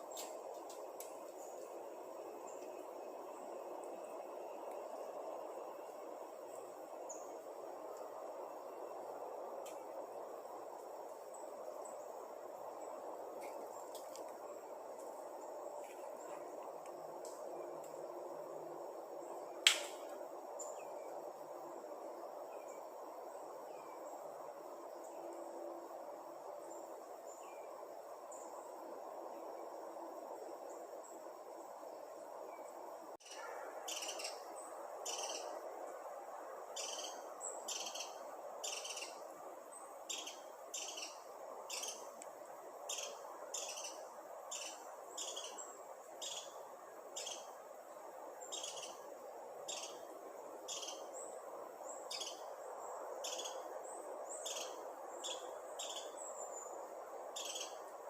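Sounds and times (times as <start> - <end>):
high insect trill: 0.0 - 58.0
bird chirping: 33.2 - 35.5, 36.8 - 39.2, 40.1 - 42.1, 42.9 - 46.6, 47.2 - 47.5, 48.4 - 49.1, 49.7 - 50.1, 50.7 - 51.3, 51.9 - 52.5, 53.2 - 53.7, 54.3 - 56.8, 57.4 - 57.8.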